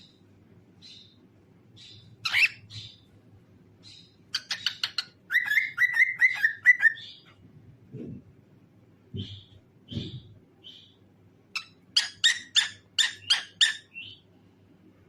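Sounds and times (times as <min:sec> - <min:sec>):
cockatiel chirping and singing: 0:01.8 - 0:03.1, 0:03.8 - 0:07.3, 0:11.6 - 0:14.2.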